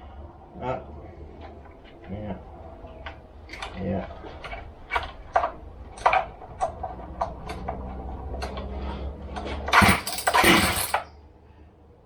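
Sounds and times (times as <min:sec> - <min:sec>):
chainsaw recoil starter pulls: 0:09.7 - 0:11.0.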